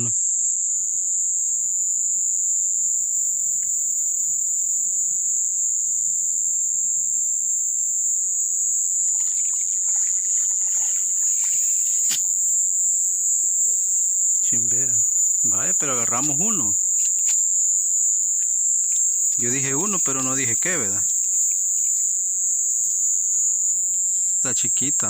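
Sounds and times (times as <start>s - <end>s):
insects chirping: 0.0s - 25.0s
water splashing and sloshing: 9.0s - 12.3s.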